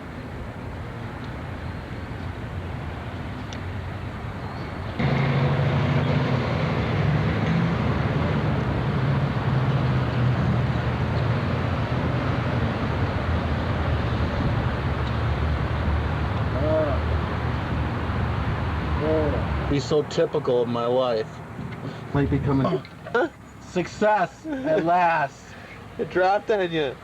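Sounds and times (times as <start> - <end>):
background traffic: 0.0 - 27.0
vehicle engine running: 5.0 - 11.7.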